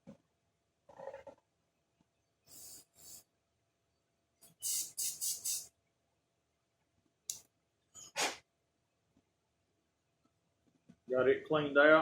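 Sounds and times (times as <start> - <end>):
aerosol spray hissing: 2.5 - 3.2, 4.4 - 5.7.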